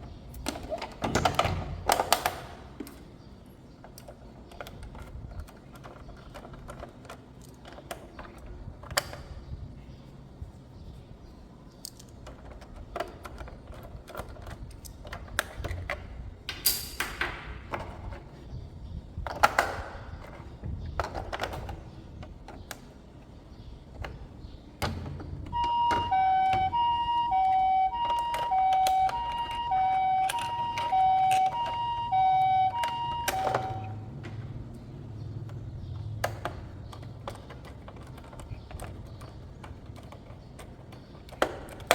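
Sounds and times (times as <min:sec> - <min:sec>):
toy siren hi-lo: 0:25.5 - 0:34.0.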